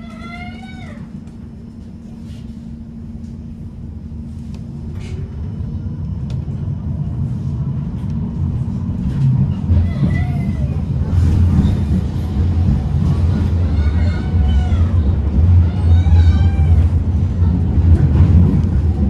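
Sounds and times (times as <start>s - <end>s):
tram rumble and hum: 0.0s - 19.0s.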